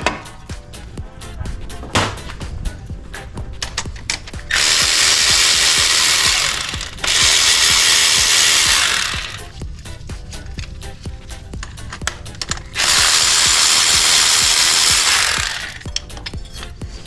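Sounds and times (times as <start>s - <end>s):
ratchet wrench clicking: 3.7s - 9.6s, 11.6s - 16.8s
power tool hissing bursts: 4.5s - 9.5s, 12.8s - 15.8s.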